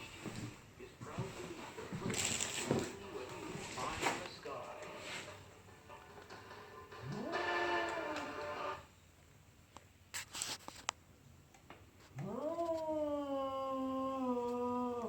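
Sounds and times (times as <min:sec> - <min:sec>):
cat yowling: 0:07.0 - 0:08.8, 0:12.2 - 0:15.0.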